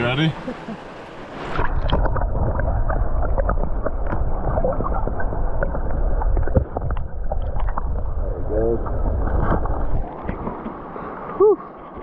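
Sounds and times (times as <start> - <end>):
muffled underwater river rumble: 0.6 - 10.9
bubbling pops and clicks: 1.6 - 8.0.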